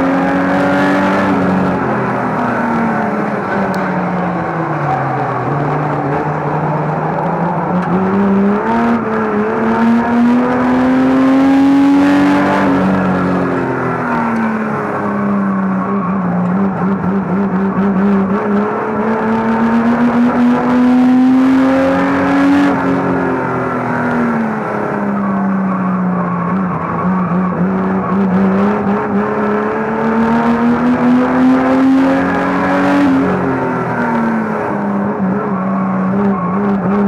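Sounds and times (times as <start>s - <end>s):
racing car engine revving: 0.0s - 37.0s.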